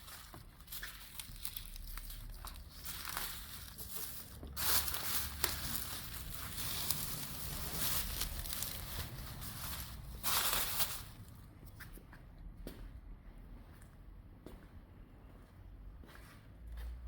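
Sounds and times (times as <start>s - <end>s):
rustling and crinkling handling: 0.0s - 12.0s.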